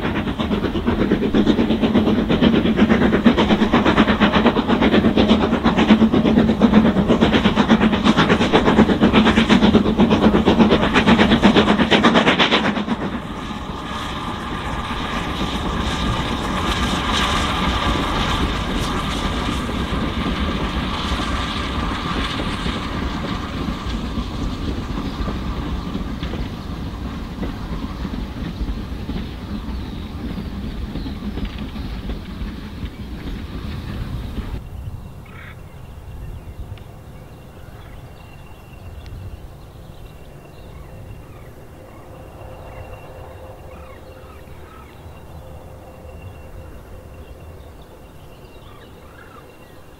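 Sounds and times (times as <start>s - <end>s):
steam locomotive beat and clatter: 0.0s - 34.7s, 37.9s - 49.9s.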